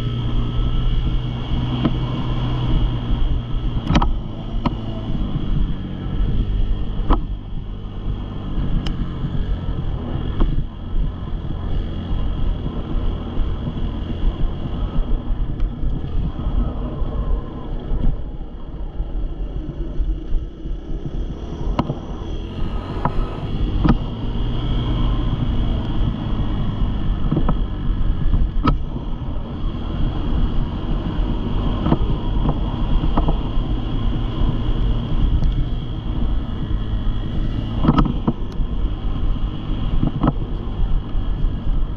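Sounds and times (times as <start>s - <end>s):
dirt bike engine at low revs: 0.0s - 41.9s
wind on microphone: 0.0s - 41.9s
sharp clicks or knocks: 3.8s - 4.9s, 21.7s - 22.0s, 22.9s - 24.4s, 28.3s - 28.9s, 31.8s - 33.4s, 37.6s - 38.6s, 40.0s - 40.5s.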